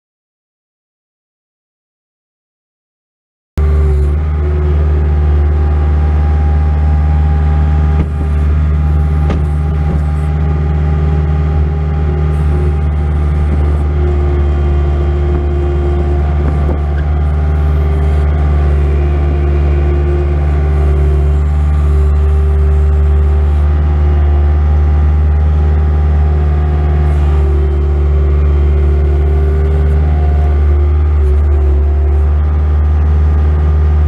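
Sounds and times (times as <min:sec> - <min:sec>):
diesel engine droning under load: 0:03.6 - 0:34.0
engine whine: 0:03.6 - 0:34.0.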